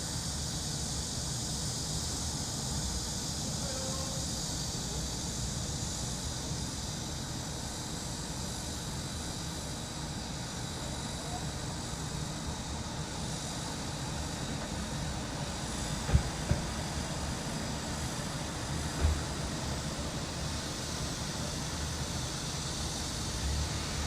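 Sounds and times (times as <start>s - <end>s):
cicadas droning: 0.0s - 24.0s
city traffic rumble: 10.0s - 24.0s.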